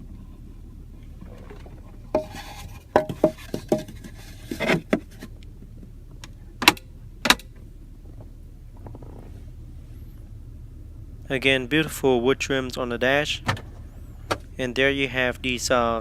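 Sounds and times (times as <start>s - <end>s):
steady low hum: 0.0s - 16.0s
latch clicks: 6.2s - 7.6s
storage compartment lid clicks: 6.6s - 7.5s.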